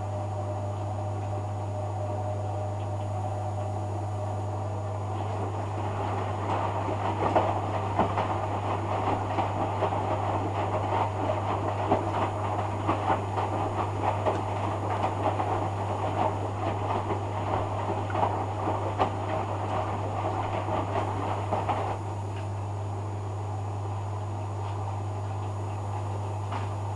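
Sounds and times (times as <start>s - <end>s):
washing machine motor hum: 0.0s - 26.9s
wet laundry tumbling and sloshing: 5.2s - 22.4s.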